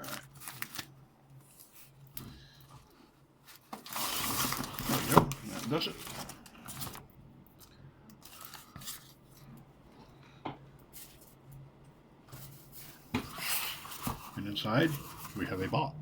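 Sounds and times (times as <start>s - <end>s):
packaging wrap rustling: 0.0s - 2.2s, 3.4s - 9.5s, 12.4s - 15.8s
low steady hum: 0.0s - 16.0s.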